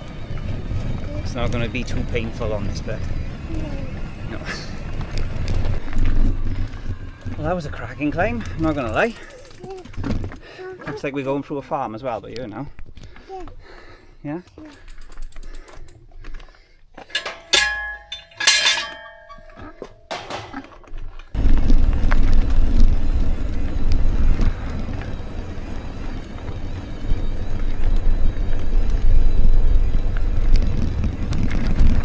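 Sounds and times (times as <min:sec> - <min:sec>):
ringing metallic strikes: 0:17.2 - 0:20.2
wind rushing on microphone: 0:21.4 - 0:32.0.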